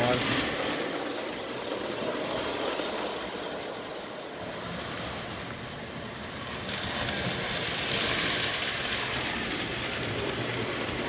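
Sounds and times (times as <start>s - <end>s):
toy train motor hum: 0.0s - 11.0s
toy train wheels rolling: 0.0s - 11.0s.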